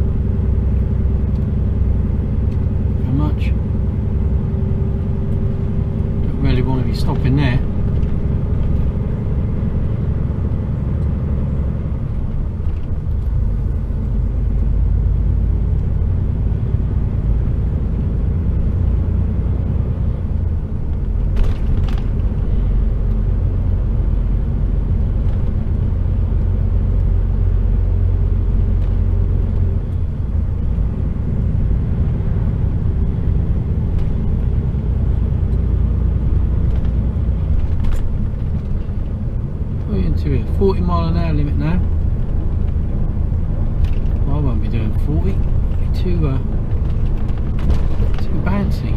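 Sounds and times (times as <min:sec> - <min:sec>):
truck diesel engine rumble: 0:00.0 - 0:48.9.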